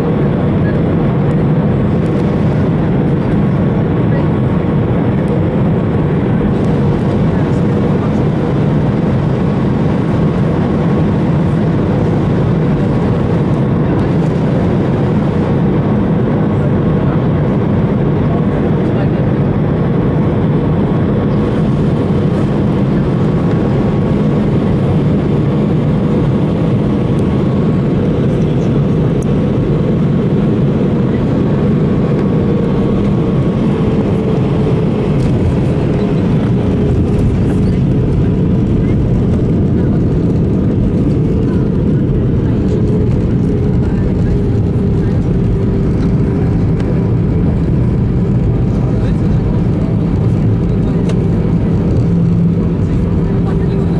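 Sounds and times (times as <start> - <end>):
airplane cabin engine noise: 0.0 - 53.9.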